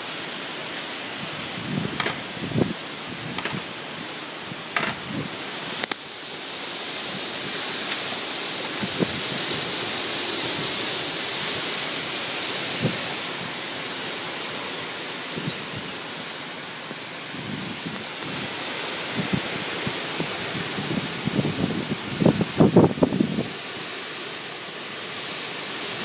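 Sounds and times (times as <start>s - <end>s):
strong wind rushing: 1.2s - 5.6s, 7.0s - 11.8s, 15.2s - 23.7s
wind buffeting microphone: 1.2s - 5.8s, 7.0s - 11.9s, 12.5s - 13.8s, 15.2s - 23.7s.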